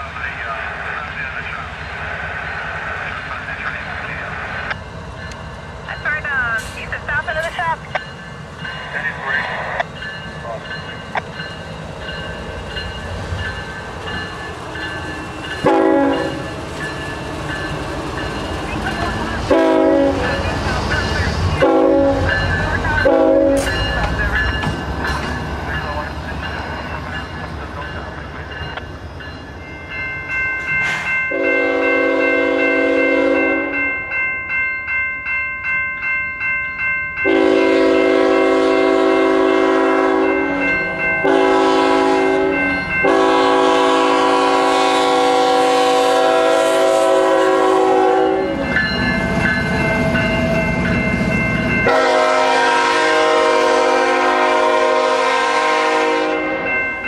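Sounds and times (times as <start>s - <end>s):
locomotive air horn: 15.6s - 16.4s, 19.5s - 20.4s, 21.6s - 22.3s, 23.0s - 23.8s, 31.3s - 33.8s, 37.3s - 40.6s, 41.2s - 48.6s, 51.8s - 56.7s.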